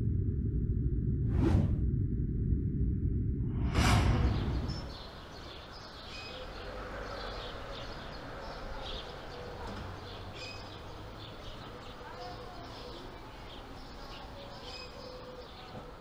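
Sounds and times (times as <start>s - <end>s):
steady low background hum: 0.0s - 4.9s
whoosh sound effect: 1.3s - 1.8s, 3.5s - 5.2s
small birds chirping: 4.3s - 16.0s.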